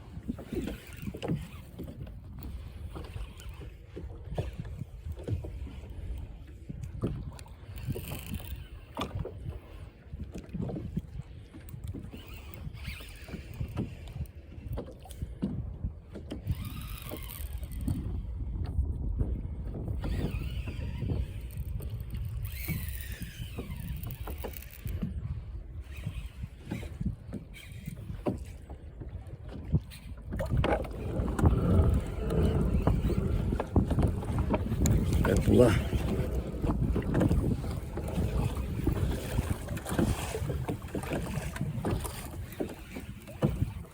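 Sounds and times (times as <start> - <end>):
wind buffeting the microphone: 0.0 - 43.9
water sloshing: 29.4 - 43.9
knocks and splashes: 29.5 - 43.9.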